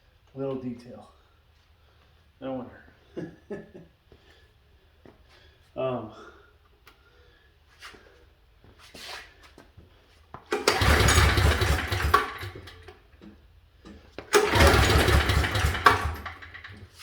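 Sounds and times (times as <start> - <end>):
small engine cranking without starting: 10.5 - 12.9, 14.3 - 17.0.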